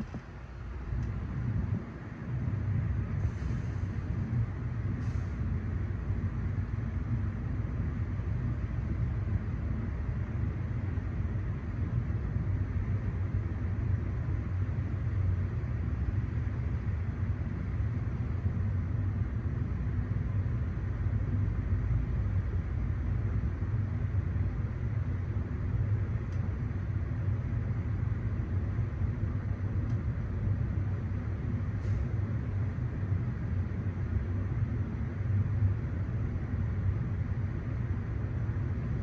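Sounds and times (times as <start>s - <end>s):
train rumbling past: 0.0s - 2.1s.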